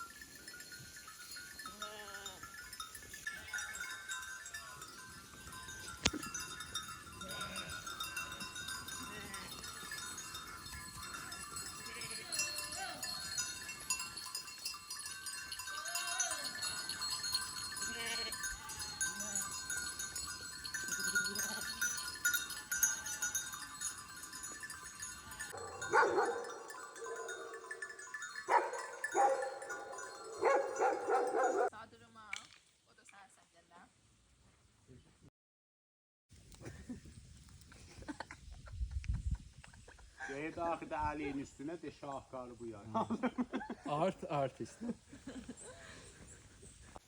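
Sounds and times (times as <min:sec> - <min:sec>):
sheep bleating: 0:17.8 - 0:18.7.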